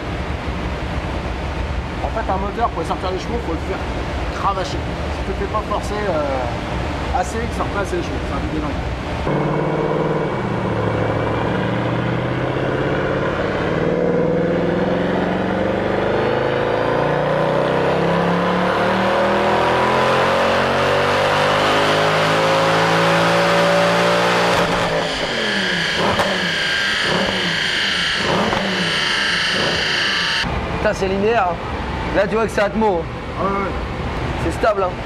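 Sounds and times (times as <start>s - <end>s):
car engine revving at full throttle: 8.4s - 30.5s.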